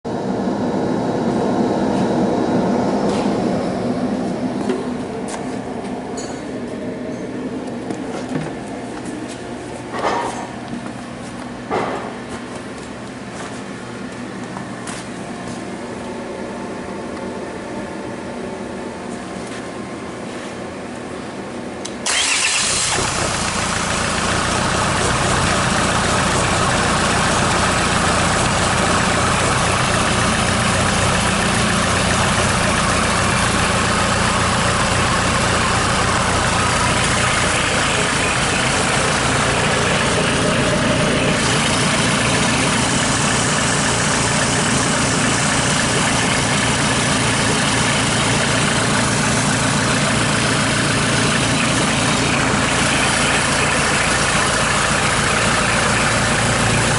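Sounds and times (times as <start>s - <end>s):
diesel engine idling: 0.1s - 6.2s, 22.0s - 56.9s.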